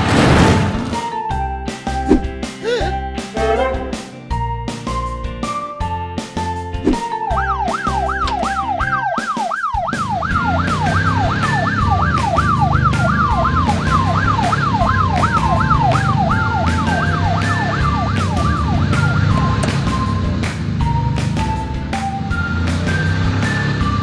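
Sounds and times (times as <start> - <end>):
background music with steady beat: 1.0 - 24.0
police siren yelping: 7.2 - 20.3.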